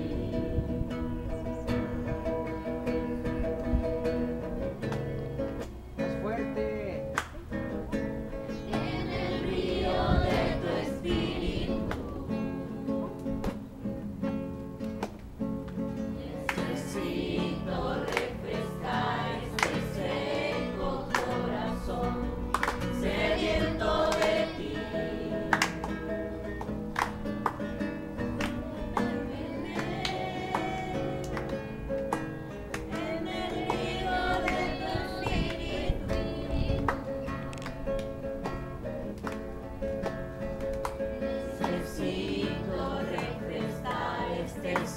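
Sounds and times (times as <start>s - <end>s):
group singing a religious song: 0.0s - 1.1s, 8.7s - 13.5s, 16.1s - 26.1s, 28.2s - 31.9s, 32.8s - 37.1s, 41.4s - 44.9s
guitar accompaniment: 0.0s - 44.9s.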